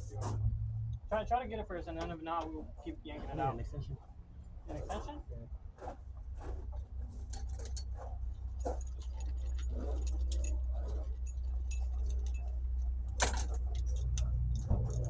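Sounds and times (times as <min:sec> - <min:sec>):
steady low rumble: 0:00.0 - 0:05.7, 0:09.7 - 0:15.0
metal hand tools clinking: 0:08.6 - 0:15.0.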